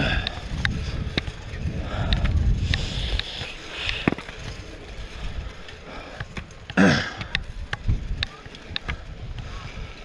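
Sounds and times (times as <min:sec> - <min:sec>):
wind and road noise: 0:00.0 - 0:10.0
sharp clicks and knocks: 0:06.2 - 0:09.0.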